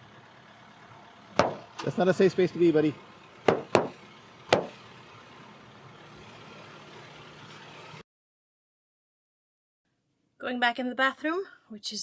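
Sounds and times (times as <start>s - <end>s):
car humming: 0.0s - 8.0s
sharp knock: 1.4s - 1.7s, 3.5s - 4.8s.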